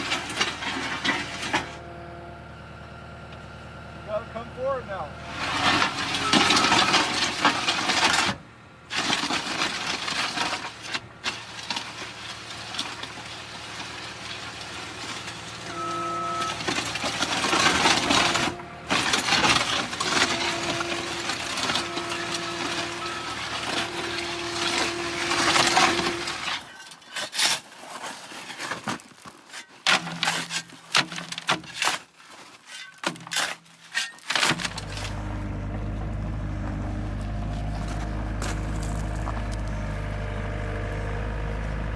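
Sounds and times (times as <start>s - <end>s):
clattering and scraping work noise: 0.0s - 1.9s, 5.2s - 41.9s
machine engine running: 15.4s - 26.4s, 34.6s - 41.9s.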